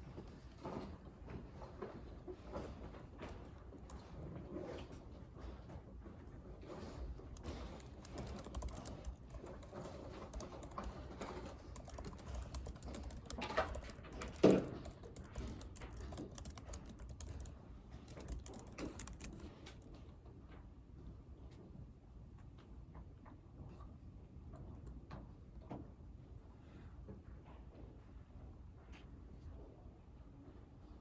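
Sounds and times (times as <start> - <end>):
computer keyboard typing: 7.0 - 19.9.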